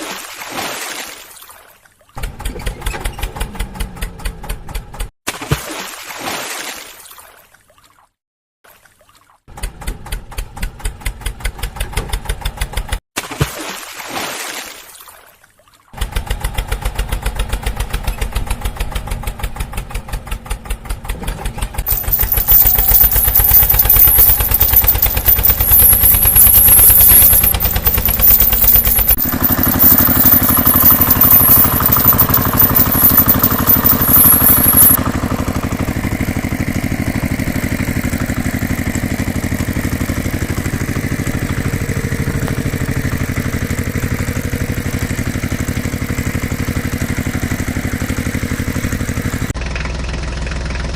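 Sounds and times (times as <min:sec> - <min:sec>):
engine chugging: 0:16.0 - 0:50.9.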